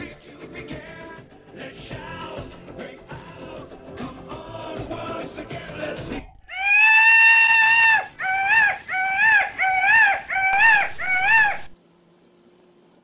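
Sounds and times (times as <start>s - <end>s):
high whining sound effect: 10.5s - 11.8s.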